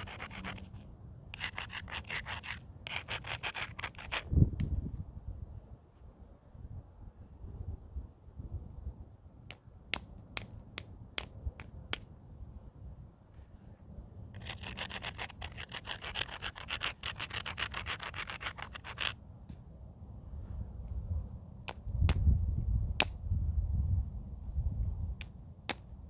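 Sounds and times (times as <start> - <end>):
stone scraping against stone: 0.0 - 4.7, 14.3 - 19.2
sharp clicks of stone on stone: 21.7 - 22.4, 25.2 - 26.0.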